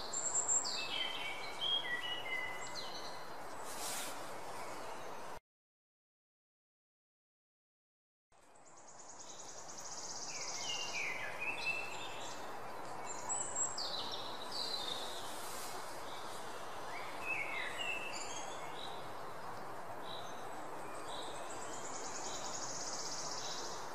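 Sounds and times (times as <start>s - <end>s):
steady outdoor hiss: 0.0s - 5.4s, 8.3s - 23.9s
birds chirping: 8.5s - 23.9s.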